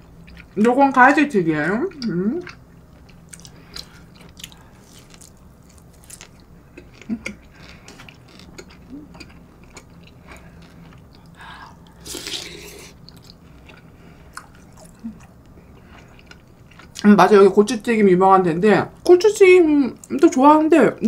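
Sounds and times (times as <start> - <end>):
chewing fried food: 0.1 - 0.7, 1.5 - 17.1.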